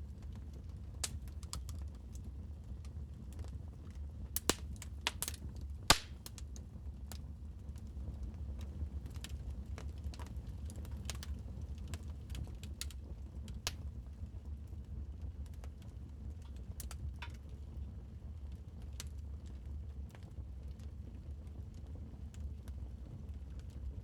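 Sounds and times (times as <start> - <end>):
low rumble of flame: 0.0 - 24.0
wood fire crackling: 0.1 - 17.6.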